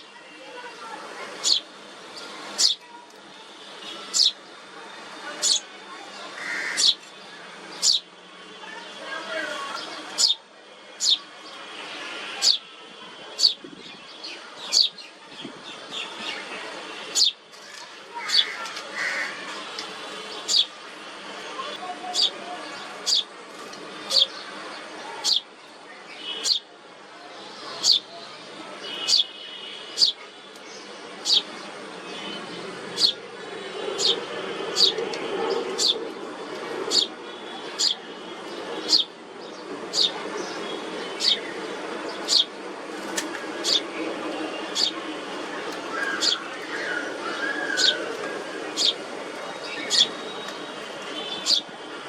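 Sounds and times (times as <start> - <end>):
songbird chirps: 0.0 - 26.7, 27.4 - 51.9
faint background noise: 0.0 - 52.0
songbird sharp high chirps: 28.9 - 29.3, 30.0 - 30.2.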